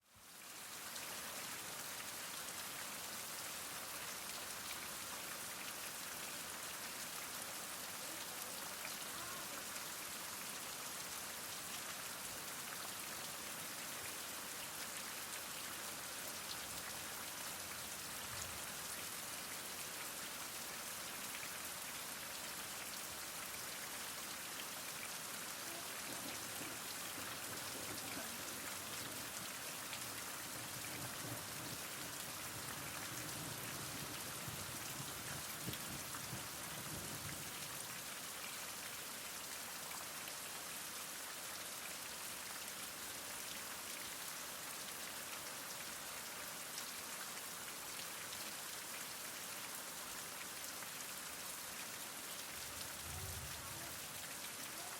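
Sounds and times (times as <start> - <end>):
heavy rain falling: 0.3 - 38.9, 49.7 - 54.9.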